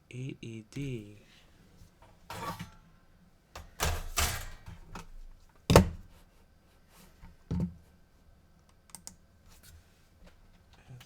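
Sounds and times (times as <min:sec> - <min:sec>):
knocks and clatters of handling: 0:02.0 - 0:02.8, 0:03.6 - 0:06.0.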